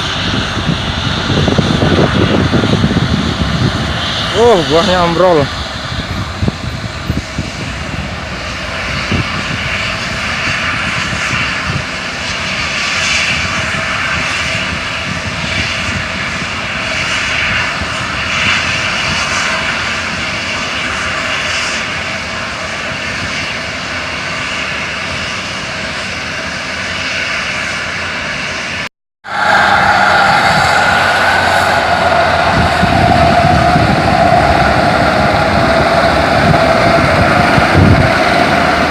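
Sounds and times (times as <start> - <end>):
truck diesel engine running: 29.3 - 38.9.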